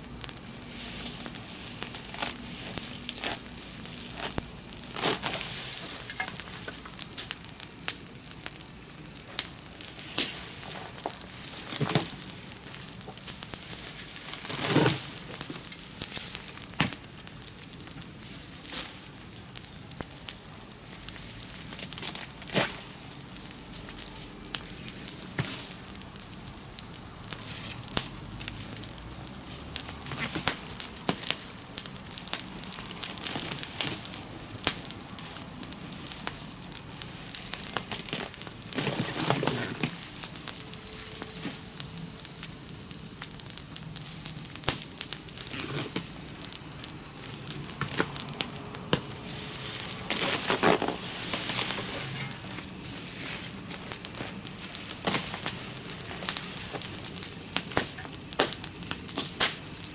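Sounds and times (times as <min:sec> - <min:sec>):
campfire crackling and popping: 0:00.0 - 0:59.9
fire hissing: 0:00.0 - 0:59.9.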